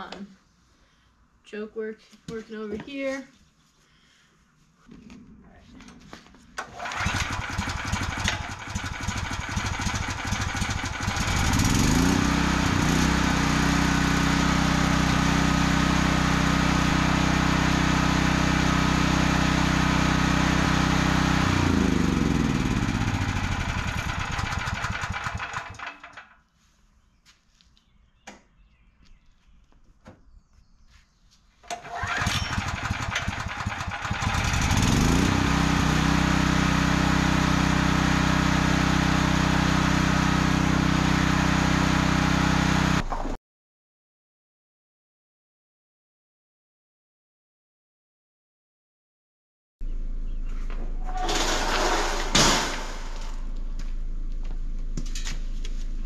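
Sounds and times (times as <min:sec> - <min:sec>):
small generator engine running: 0:06.6 - 0:26.4, 0:31.7 - 0:43.1, 0:49.8 - 0:56.0.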